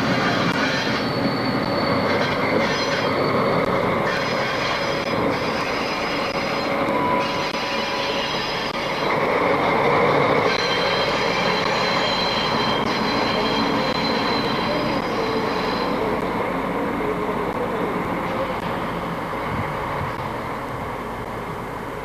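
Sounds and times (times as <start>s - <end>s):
high wheel squeal: 0.0s - 16.4s
train rumbling on rails: 0.0s - 22.0s.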